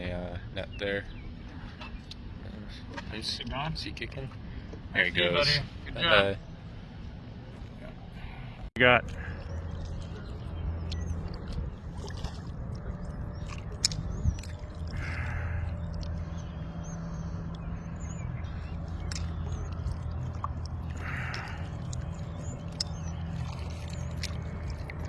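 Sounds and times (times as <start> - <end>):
wind rumble on microphone: 9.1 - 25.0.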